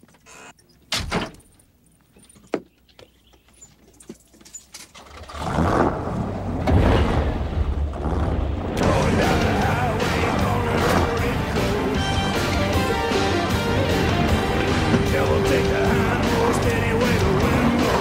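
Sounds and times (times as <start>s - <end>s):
car engine revving: 8.0s - 18.0s.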